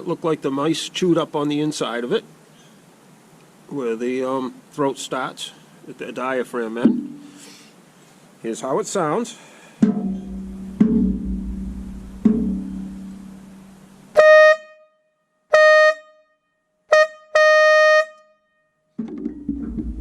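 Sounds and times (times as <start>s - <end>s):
low-pitched horn tone: 10.2s - 14.9s
air horn blasts: 14.1s - 16.3s, 16.9s - 18.4s.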